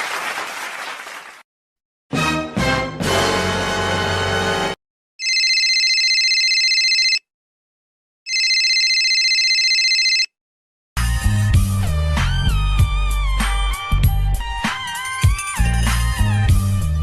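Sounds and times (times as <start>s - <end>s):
music: 2.1s - 4.8s, 11.0s - 17.0s
telephone ringing: 5.2s - 7.3s, 8.3s - 10.4s.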